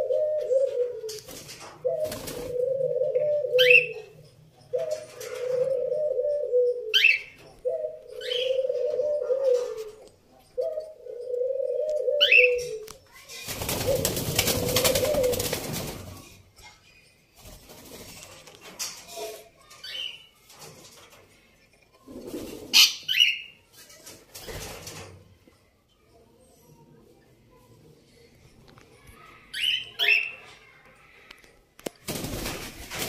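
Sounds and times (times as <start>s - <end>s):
low wavering cooing call: 4.8s - 10.0s.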